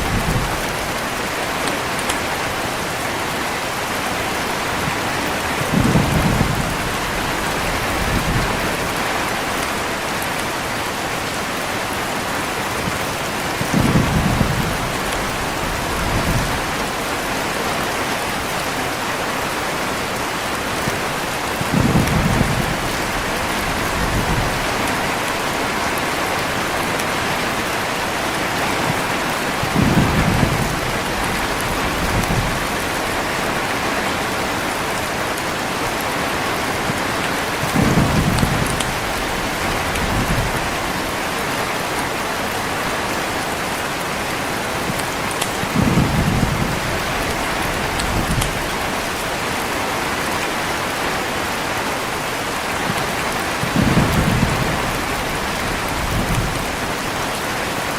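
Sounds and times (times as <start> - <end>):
heavy rain: 0.0 - 57.9
thunder rumbling: 4.7 - 9.7, 12.7 - 17.7, 21.5 - 35.2, 36.7 - 41.2, 43.9 - 49.8, 52.8 - 57.0.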